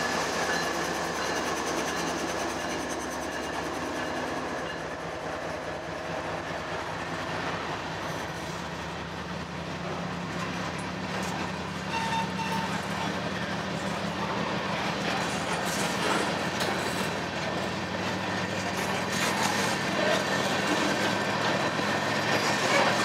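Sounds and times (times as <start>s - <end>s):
steel wheels rumbling on rails: 0.0s - 23.0s
wheels squealing: 11.2s - 23.0s.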